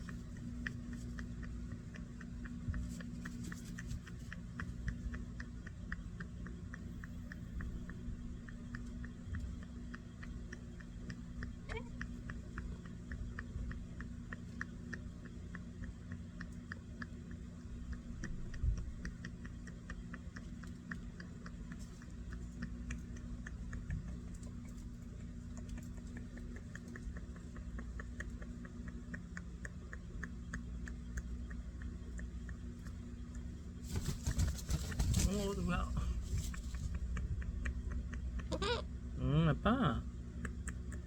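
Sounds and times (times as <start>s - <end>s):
animal chewing crunches: 0.0s - 39.0s
low hum: 0.0s - 41.0s.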